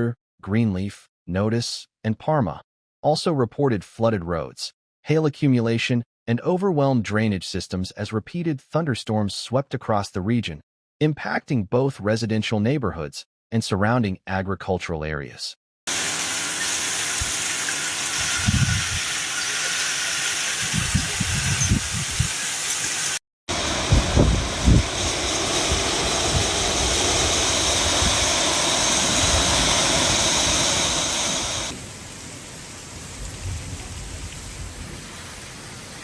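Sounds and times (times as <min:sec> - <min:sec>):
heavy rain hissing: 0:15.9 - 0:36.0.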